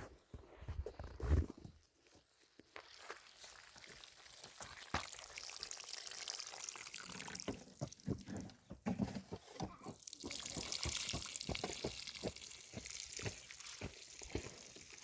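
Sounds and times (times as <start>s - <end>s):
water pouring: 2.8s - 8.5s, 10.0s - 15.0s.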